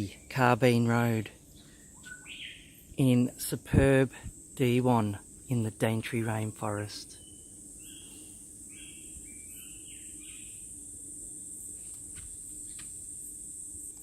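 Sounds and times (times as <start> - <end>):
insects droning: 0.0 - 14.0
bird chirps: 1.6 - 3.0, 7.1 - 10.7.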